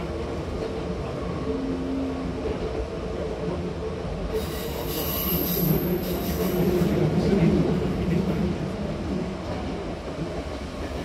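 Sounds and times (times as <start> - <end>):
wheels rumbling on rails: 0.0 - 11.0.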